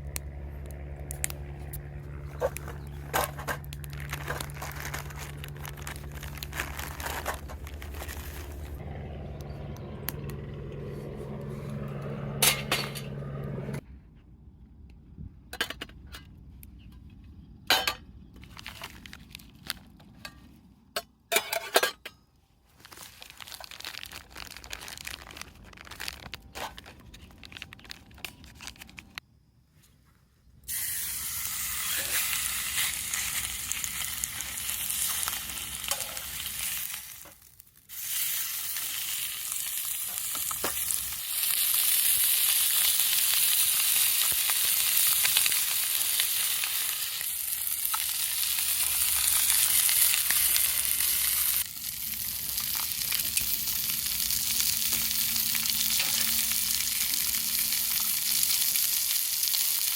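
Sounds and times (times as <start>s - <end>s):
crinkling clicks: 23.4s - 29.2s
chicken sizzling in a hot pan: 37.9s - 59.9s.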